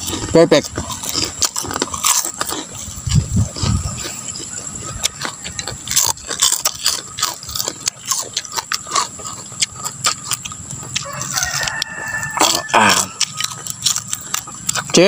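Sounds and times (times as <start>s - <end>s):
crunchy food being chewed: 0.0s - 15.0s
rooster crowing: 4.3s - 6.3s, 10.8s - 13.9s.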